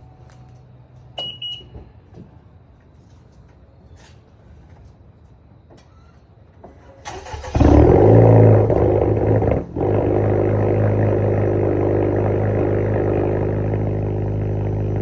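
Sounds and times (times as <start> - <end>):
car engine starting and idling: 7.0 - 15.0.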